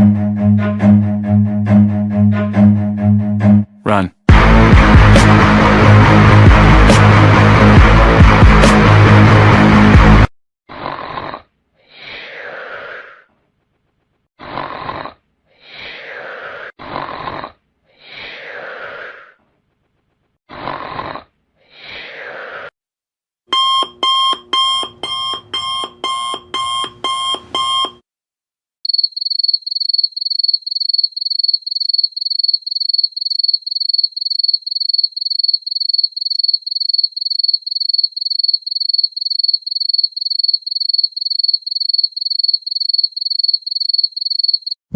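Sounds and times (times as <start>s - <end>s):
short hissing sounds: 11.8s - 13.3s, 15.6s - 16.7s, 17.9s - 19.4s, 21.6s - 22.7s
electronic alarm clock beep: 23.5s - 28.0s.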